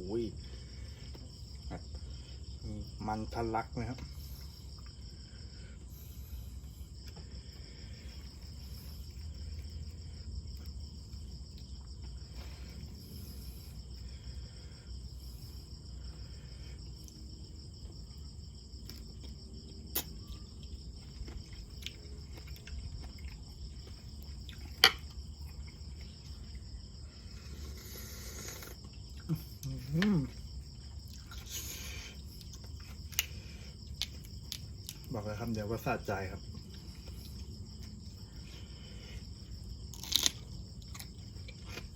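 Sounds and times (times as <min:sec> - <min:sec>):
insect chorus trilling: 0:00.0 - 0:41.9.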